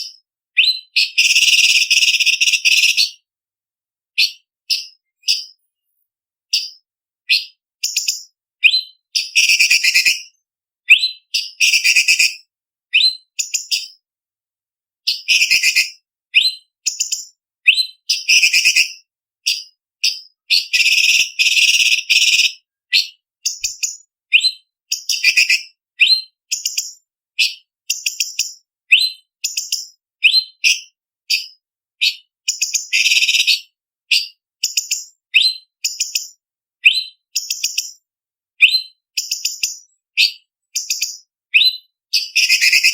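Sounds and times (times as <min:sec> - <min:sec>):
bird singing high whistled notes: 0:00.0 - 0:03.2, 0:06.5 - 0:12.3, 0:12.9 - 0:14.0, 0:15.1 - 0:38.0, 0:38.6 - 0:42.9.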